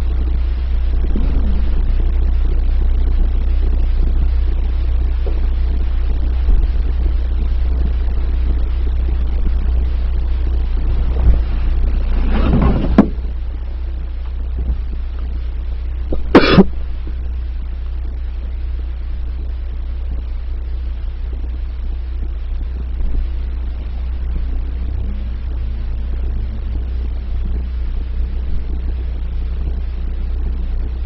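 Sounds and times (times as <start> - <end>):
car interior rumble: 0.0 - 31.0
person coughing: 16.2 - 16.7.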